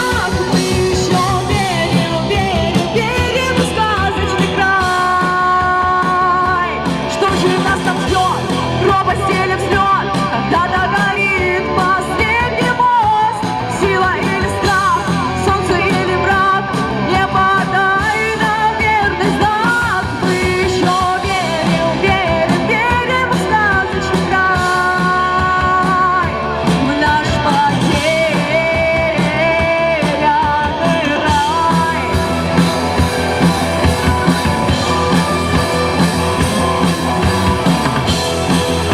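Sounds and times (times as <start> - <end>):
rock song with singing: 0.0 - 38.9.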